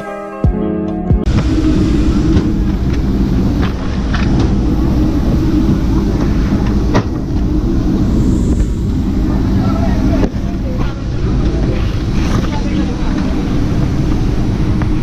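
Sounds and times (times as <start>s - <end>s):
vehicle rumble from inside: 1.3s - 15.0s.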